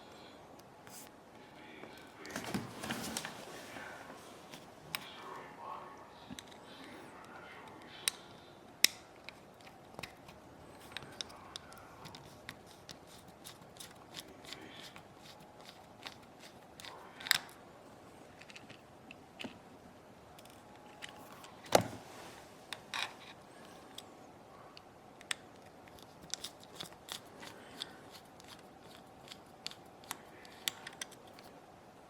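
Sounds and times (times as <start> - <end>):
small tools clicking and tapping: 25.2 - 31.5.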